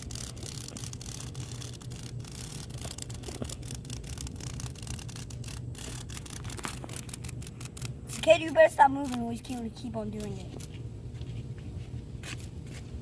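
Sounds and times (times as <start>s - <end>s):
cicada distress buzz: 0.0s - 9.6s.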